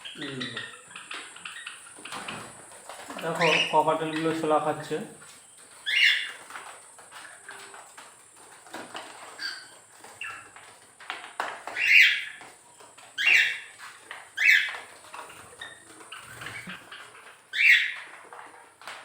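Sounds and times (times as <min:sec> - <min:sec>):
faint bird chirps: 0:00.0 - 0:02.5
birds squawking harshly: 0:00.0 - 0:05.0, 0:05.6 - 0:07.6, 0:09.2 - 0:10.6, 0:11.4 - 0:12.5, 0:13.1 - 0:18.2.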